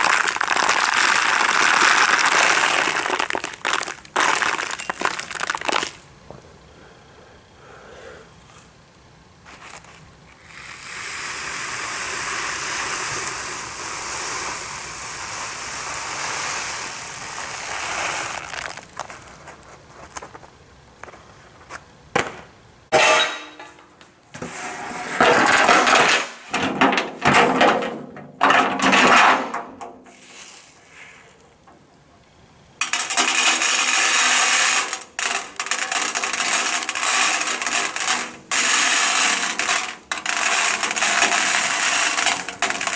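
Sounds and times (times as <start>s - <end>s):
aquarium gravel rattling: 0.0s - 6.1s, 10.5s - 19.8s, 32.8s - 42.9s.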